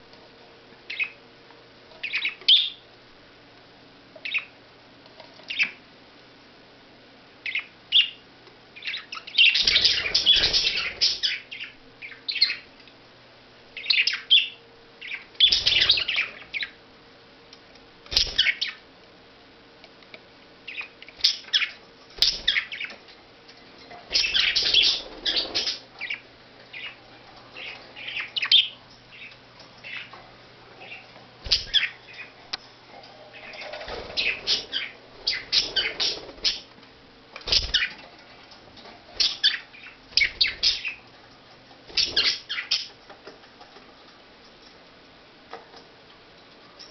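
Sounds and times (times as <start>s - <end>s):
budgerigars chirping: 0.9s - 1.2s, 2.0s - 2.8s, 4.2s - 4.5s, 7.4s - 8.2s, 8.8s - 12.7s, 13.8s - 16.8s, 18.1s - 18.8s, 20.7s - 23.0s, 24.1s - 27.0s, 27.6s - 30.1s, 30.8s - 32.4s, 33.4s - 36.7s, 37.5s - 38.0s, 39.2s - 41.0s, 41.9s - 43.0s.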